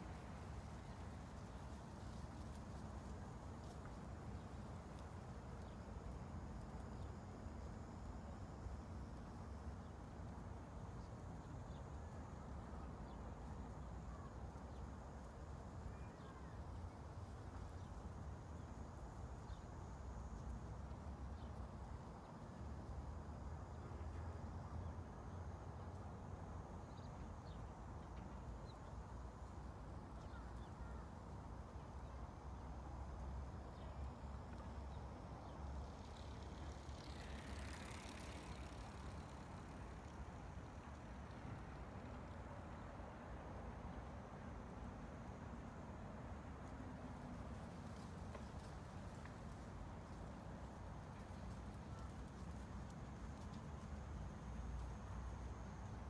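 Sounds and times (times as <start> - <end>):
faint ticks: 35.6 - 41.6, 46.6 - 56.0.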